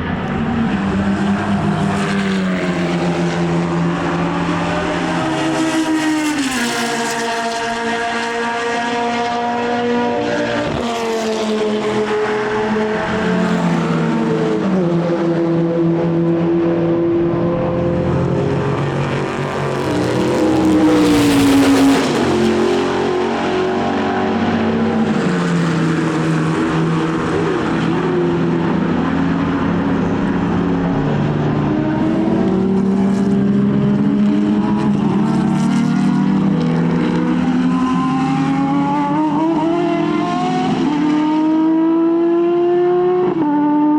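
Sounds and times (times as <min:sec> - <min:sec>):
race car engines: 0:00.0 - 0:43.9
race car passing by: 0:00.0 - 0:43.9.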